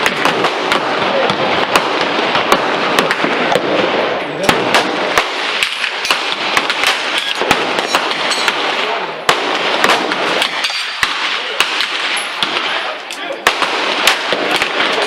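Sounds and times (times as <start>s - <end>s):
gunshots: 0.0s - 15.0s.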